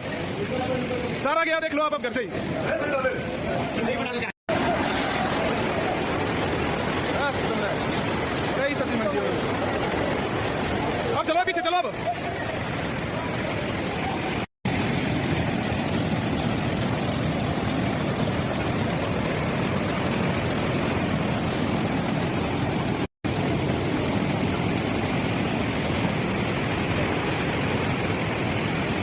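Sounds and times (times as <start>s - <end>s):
rushing floodwater roar: 0.0s - 29.0s.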